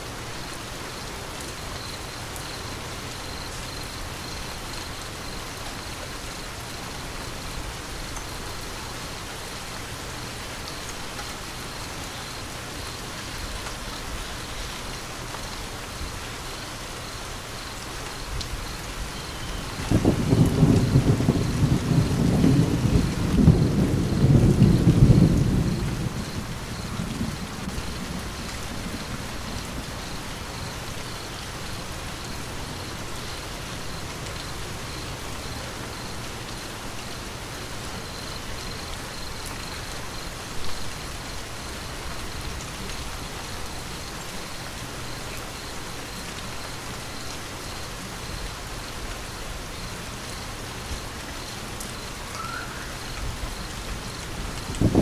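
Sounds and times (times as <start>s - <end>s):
steady rain: 0.0s - 55.0s
thunder rumbling: 19.0s - 33.2s, 52.4s - 55.0s.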